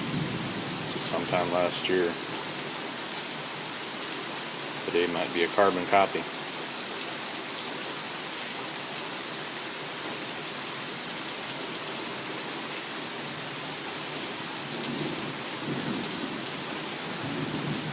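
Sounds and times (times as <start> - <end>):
low rumble of thunder: 0.0 - 1.1, 14.8 - 17.9
heavy rain falling: 0.0 - 17.9.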